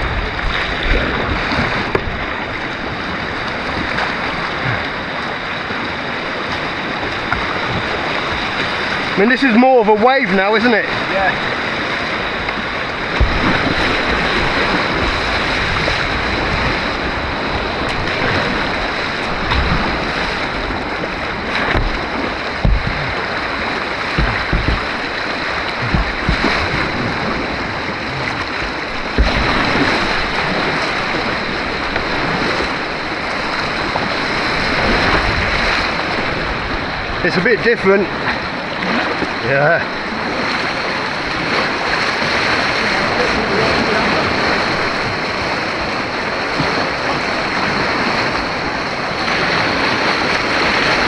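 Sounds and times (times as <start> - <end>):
churning white water: 0.0 - 51.0
brief low thumps: 13.1 - 14.6, 20.7 - 23.4, 24.0 - 27.4, 28.1 - 29.8.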